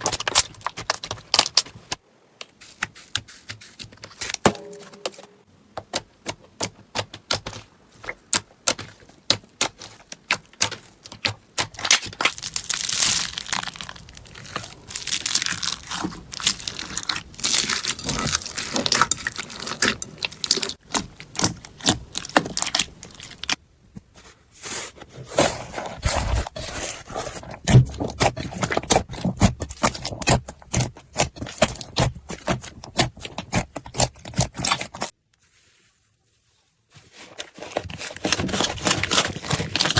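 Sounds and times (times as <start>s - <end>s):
slime crackling and popping: 9.3s - 23.6s.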